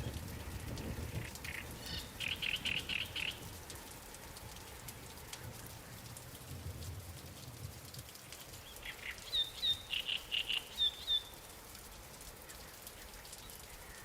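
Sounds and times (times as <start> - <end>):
light rain falling on water: 0.0 - 14.0
songbird chirping: 1.4 - 3.5, 8.3 - 11.5.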